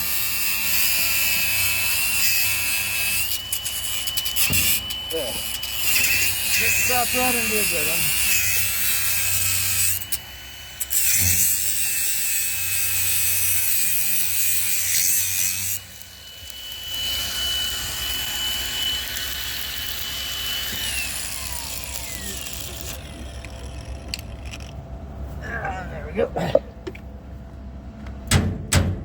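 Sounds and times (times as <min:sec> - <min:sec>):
welding arc crackling and hissing: 0:00.1 - 0:24.3
steady high whine: 0:15.8 - 0:28.4.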